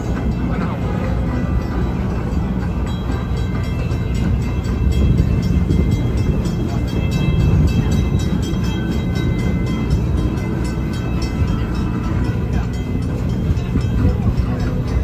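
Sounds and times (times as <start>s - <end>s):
music playing: 0.0s - 15.0s
train rumbling and rattling on track: 0.0s - 15.0s.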